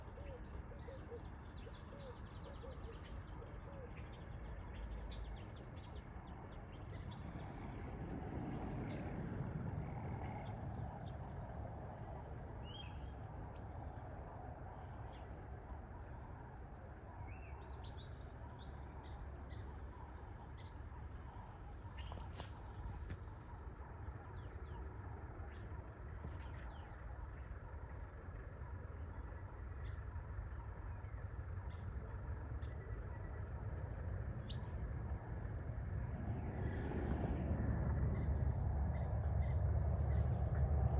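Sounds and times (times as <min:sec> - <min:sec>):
low background rumble: 0:00.0 - 0:40.9
small birds chirping: 0:17.2 - 0:27.6, 0:34.4 - 0:36.2.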